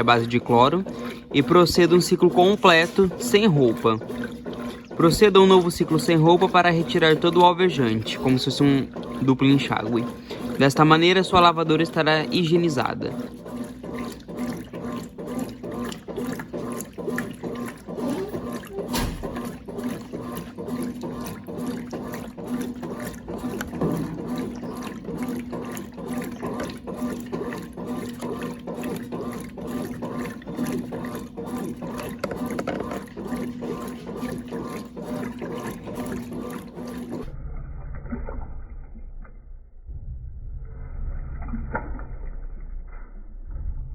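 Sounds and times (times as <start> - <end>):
water splashing in washing machine: 0.0 - 39.7, 41.1 - 43.4
electrical hum: 0.0 - 43.9
dull low rumble: 37.2 - 43.9.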